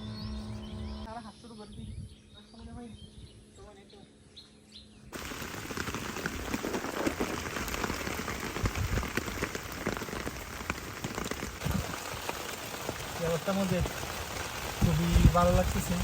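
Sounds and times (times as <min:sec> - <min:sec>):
heavy rain pattering on a tent: 0:05.2 - 0:16.0.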